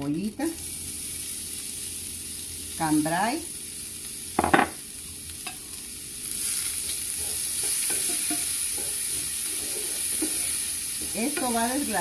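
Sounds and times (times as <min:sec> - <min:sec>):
onions sizzling in a frying pan: 0:00.0 - 0:12.0
spatula scraping a pan: 0:06.4 - 0:12.0.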